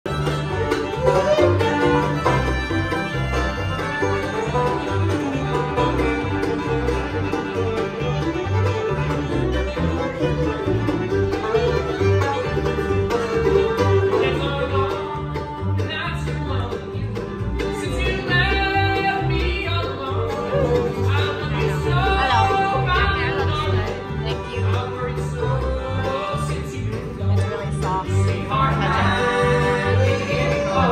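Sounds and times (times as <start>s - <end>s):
banjo: 0.0s - 30.9s
bluegrass band playing: 0.0s - 30.9s
bowed fiddle: 0.1s - 30.9s.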